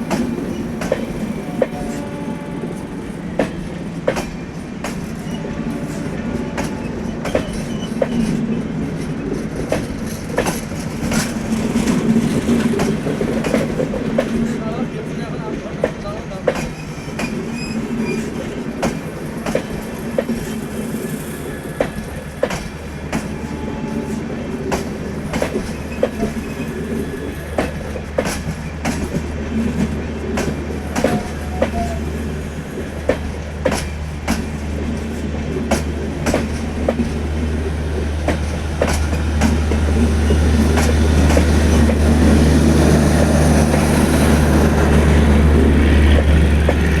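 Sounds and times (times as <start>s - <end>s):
train rumbling on rails: 0.0s - 47.0s
wheels clicking over rail joints: 9.0s - 14.6s, 24.7s - 32.3s, 32.9s - 44.2s.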